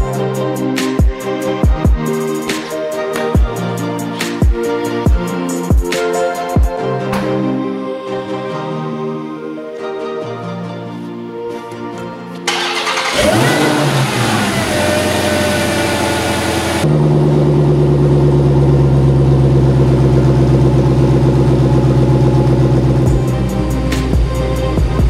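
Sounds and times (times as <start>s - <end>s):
car engine cold start with whine: 12.5s - 24.1s
car engine lumpy idle: 12.5s - 25.0s.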